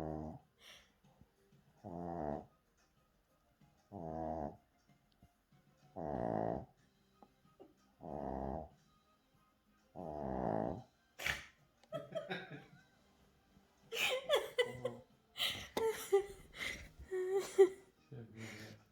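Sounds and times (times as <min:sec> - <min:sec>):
puppy growling: 0:00.0 - 0:00.5, 0:01.8 - 0:02.6, 0:03.9 - 0:04.7, 0:05.9 - 0:06.8, 0:07.9 - 0:08.8, 0:09.9 - 0:11.6.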